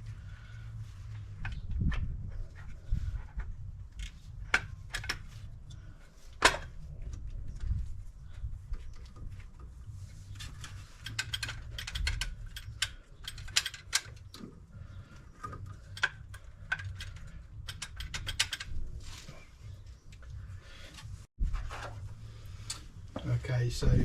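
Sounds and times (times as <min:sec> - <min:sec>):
sharp metallic clicks and knocks: 0:10.6 - 0:14.5, 0:15.4 - 0:18.8.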